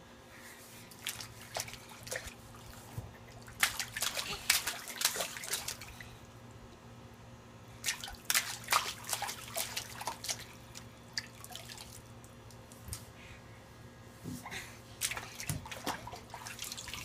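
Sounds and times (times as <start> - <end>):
water splashing: 1.0 - 6.0, 7.8 - 12.0, 15.0 - 17.0.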